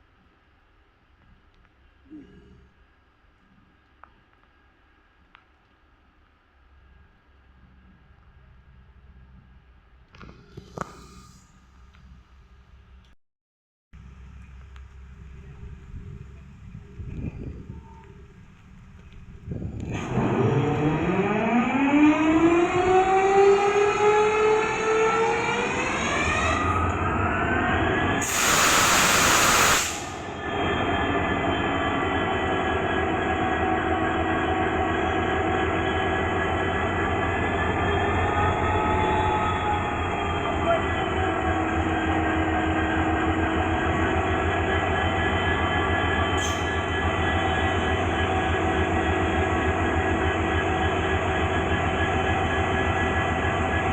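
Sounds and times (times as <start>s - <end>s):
locomotive engine starting and idling: 14.0s - 53.9s
hiss of air: 28.2s - 30.5s.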